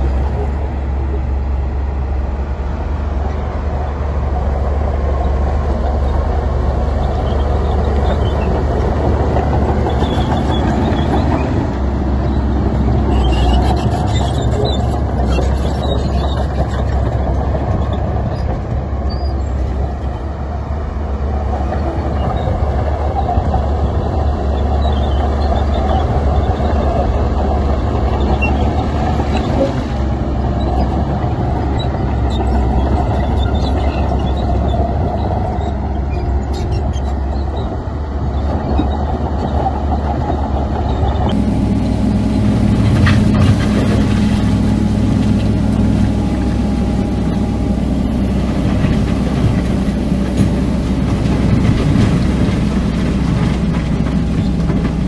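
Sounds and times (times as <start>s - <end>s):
heavy diesel machinery running: 0.0s - 55.0s.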